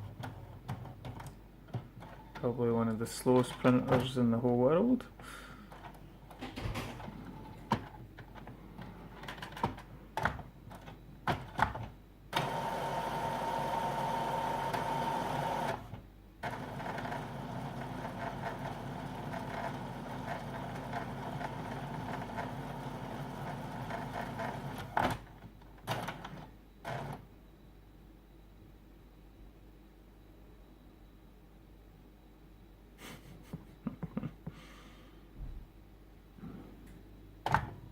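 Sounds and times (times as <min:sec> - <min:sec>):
printer whirring: 0:06.3 - 0:27.2.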